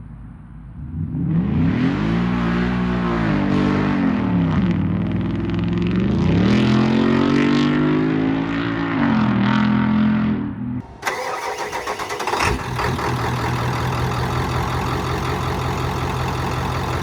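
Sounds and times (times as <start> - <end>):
vehicle engine revving: 9.6 - 17.0.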